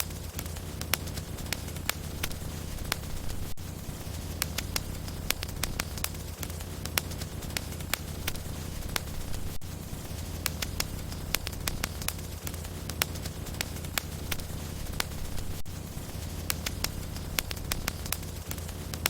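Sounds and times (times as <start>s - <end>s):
low rumble of flames: 0.0s - 19.0s
wood fire crackling and popping: 0.0s - 19.0s.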